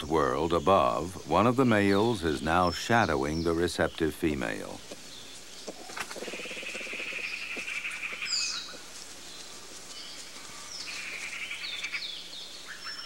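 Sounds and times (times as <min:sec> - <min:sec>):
bird trilling: 0:04.7 - 0:08.9, 0:10.6 - 0:13.0.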